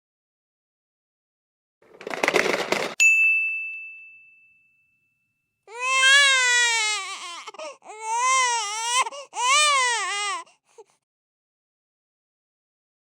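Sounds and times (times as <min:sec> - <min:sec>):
baby crying: 0:05.7 - 0:11.0.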